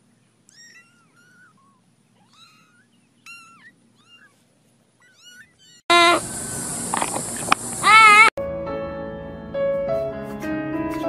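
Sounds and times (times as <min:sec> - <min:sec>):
kittens mewing: 0:00.5 - 0:06.4, 0:07.7 - 0:08.3.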